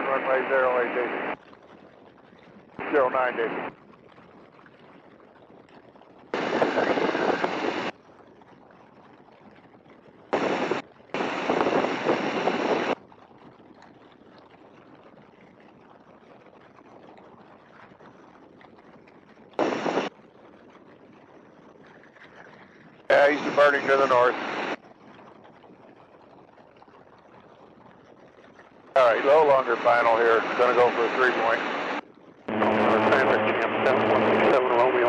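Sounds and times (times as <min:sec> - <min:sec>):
radio transmissions: 0:00.0 - 0:01.4, 0:02.8 - 0:03.7, 0:06.4 - 0:07.9, 0:10.4 - 0:13.0, 0:19.6 - 0:20.1, 0:23.1 - 0:24.8, 0:29.0 - 0:35.0
wind noise: 0:00.0 - 0:35.0
aircraft engine drone: 0:06.4 - 0:07.9, 0:10.4 - 0:13.0, 0:19.6 - 0:20.1, 0:23.1 - 0:24.8, 0:29.0 - 0:35.0.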